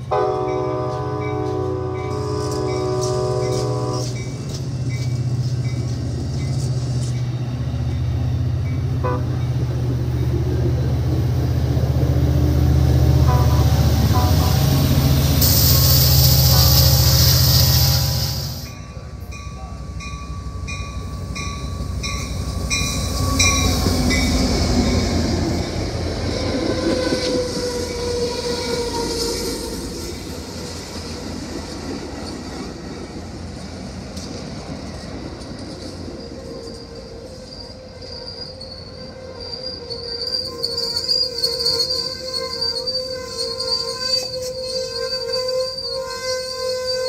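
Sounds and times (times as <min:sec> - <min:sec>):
train rushing past: 0:00.0 - 0:43.6
wheel squeal: 0:15.4 - 0:18.7, 0:36.0 - 0:47.0.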